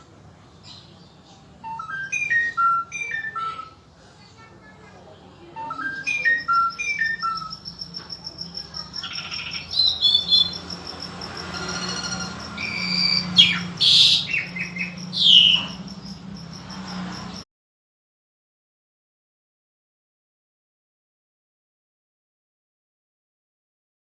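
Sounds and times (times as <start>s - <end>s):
songbird singing: 0.0s - 17.4s.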